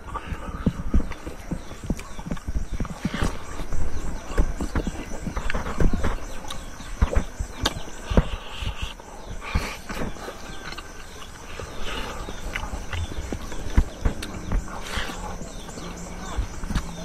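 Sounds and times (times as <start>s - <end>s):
man chewing and lip smacking: 7.5s - 17.0s.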